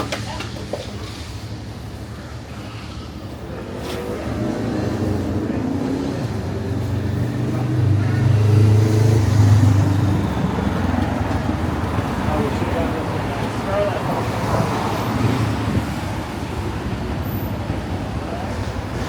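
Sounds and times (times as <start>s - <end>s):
vehicle engine passing: 4.0s - 15.6s.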